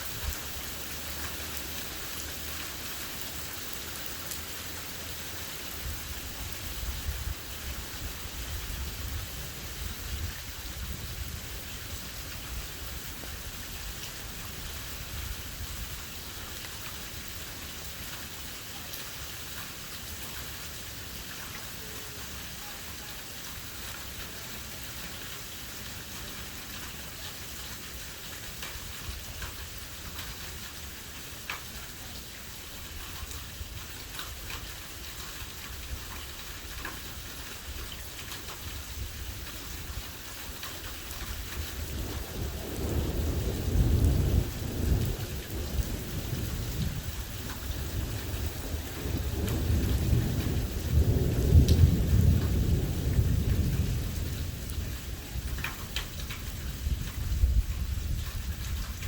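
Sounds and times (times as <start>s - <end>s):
steady rain: 0.0s - 59.0s
ticks of raindrops striking: 0.0s - 59.0s
low thunder rumble: 40.8s - 59.0s.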